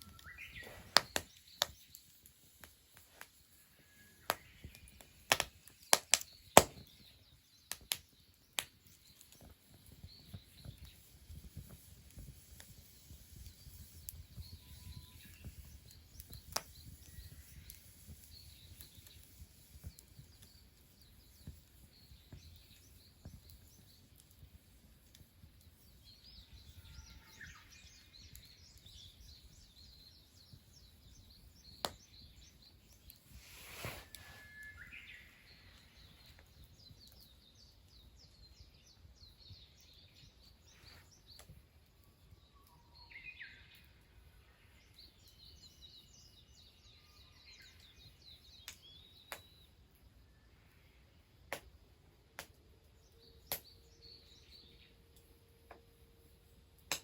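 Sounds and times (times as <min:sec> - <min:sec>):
small birds chirping: 0:00.0 - 0:57.0
sharp clicks: 0:04.3 - 0:06.8
rustling: 0:33.4 - 0:34.8.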